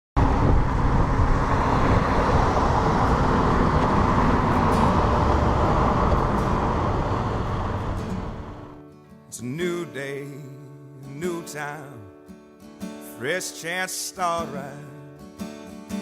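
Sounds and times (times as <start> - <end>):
motorcycle engine: 0.2 - 8.8
road noise: 0.2 - 8.8
wind rushing: 0.2 - 8.8.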